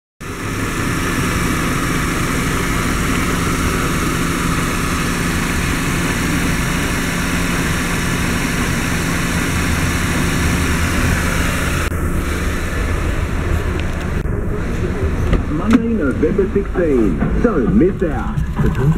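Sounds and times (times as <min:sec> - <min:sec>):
car engine idling: 0:00.2 - 0:18.9.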